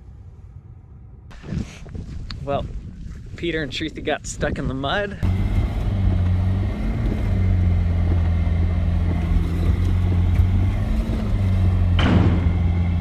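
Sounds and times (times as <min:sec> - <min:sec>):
vehicle engine running: 0:05.2 - 0:13.0.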